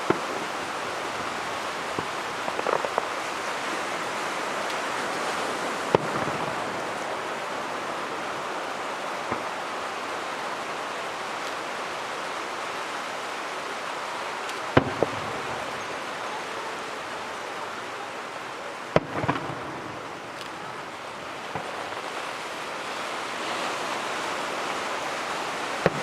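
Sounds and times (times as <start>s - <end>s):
firework shells bursting: 0.0s - 7.0s, 18.9s - 22.9s, 24.0s - 26.0s
rain-like hiss: 0.0s - 26.0s.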